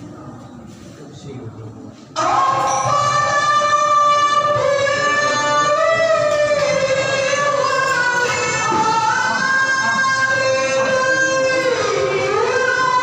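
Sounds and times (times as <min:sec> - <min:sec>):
person reciting over loudspeaker: 0:02.2 - 0:13.0.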